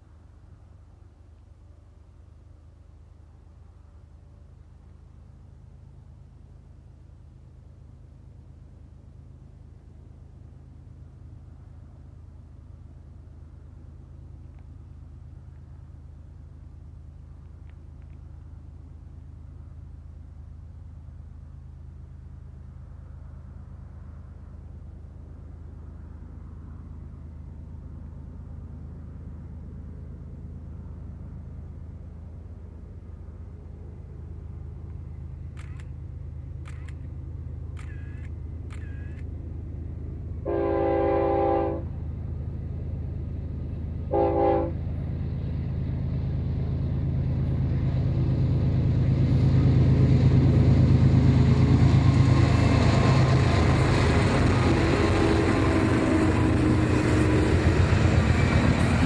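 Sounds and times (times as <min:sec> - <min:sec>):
locomotive engine drone: 0:00.0 - 0:59.0
train horn blasts: 0:40.4 - 0:42.0, 0:44.1 - 0:44.9, 0:52.5 - 0:59.0.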